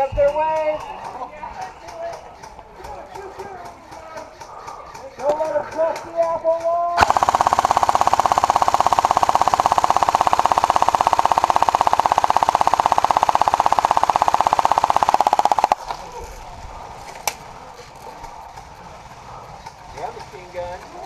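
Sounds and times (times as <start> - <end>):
airsoft gun firing full-auto: 7.0 - 15.8.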